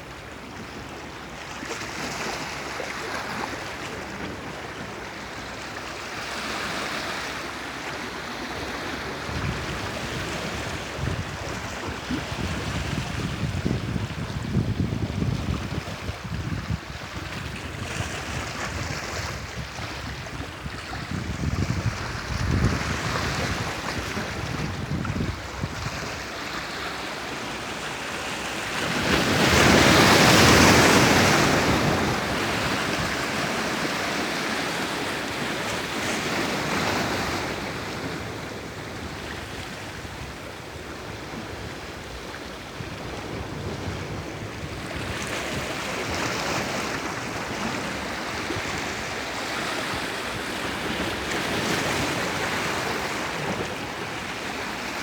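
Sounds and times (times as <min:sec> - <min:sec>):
wind on microphone: 0:08.6 - 0:27.8, 0:28.5 - 0:55.0
sea waves washing in: 0:19.3 - 0:55.0.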